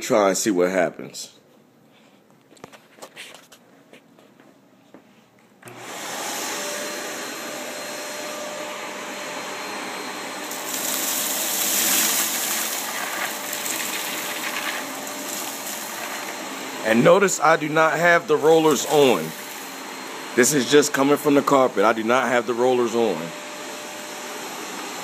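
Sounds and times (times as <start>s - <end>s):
vacuum cleaner running: 5.6s - 25.0s
vacuum sucking up cereal: 5.7s - 17.2s, 18.3s - 21.0s.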